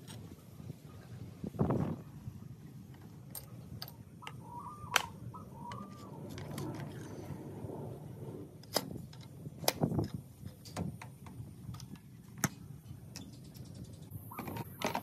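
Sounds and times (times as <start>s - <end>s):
hand tools and metal clicking: 0.0s - 0.3s, 2.9s - 7.2s, 8.6s - 15.0s
low steady rumble: 0.0s - 14.6s.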